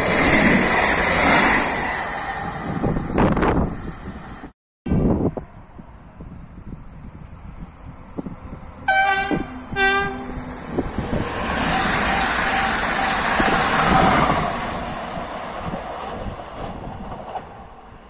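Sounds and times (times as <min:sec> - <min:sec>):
train wheels rushing on rail: 0:00.0 - 0:04.5, 0:06.2 - 0:18.0
train horn blasts: 0:08.9 - 0:10.5.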